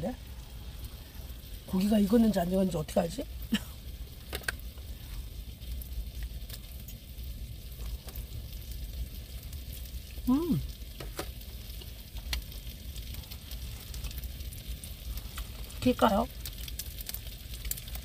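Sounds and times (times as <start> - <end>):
meat sizzling in a pan: 0.0 - 18.0
voice humming: 10.3 - 10.6.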